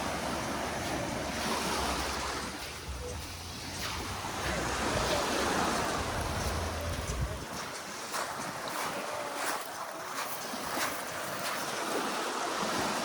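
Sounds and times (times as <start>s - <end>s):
wind rumbling on microphone: 0.0s - 9.4s
waves washing onto beach: 0.0s - 13.0s.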